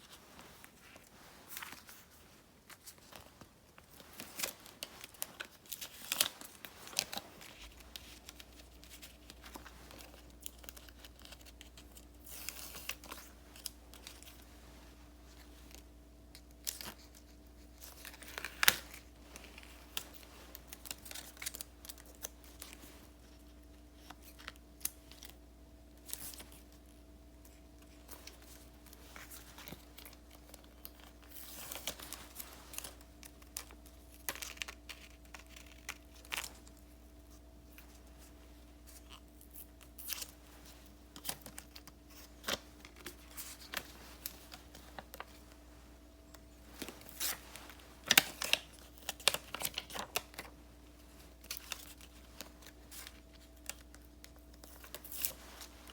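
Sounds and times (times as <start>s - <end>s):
faint steady hum: 0.0s - 55.9s
paper rustling and tearing: 3.9s - 14.4s.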